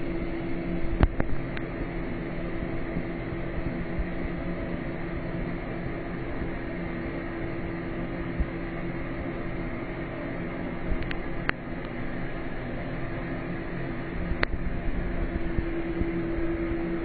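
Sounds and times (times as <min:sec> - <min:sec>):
mechanical hum and hiss: 0:00.0 - 0:17.0.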